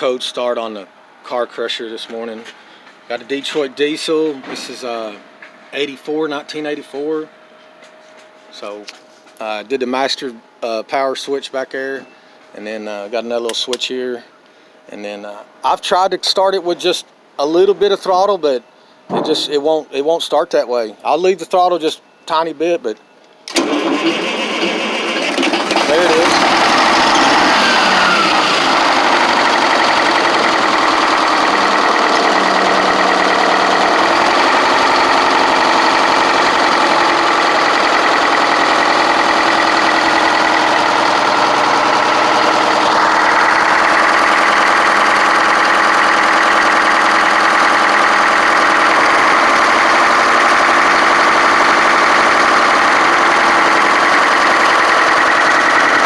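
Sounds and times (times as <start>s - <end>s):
diesel engine idling: 23.5s - 56.0s.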